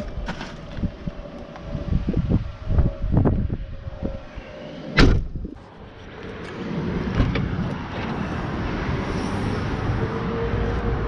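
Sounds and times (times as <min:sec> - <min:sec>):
steady rushing noise: 0:00.0 - 0:11.0
loud thump: 0:05.0 - 0:05.4.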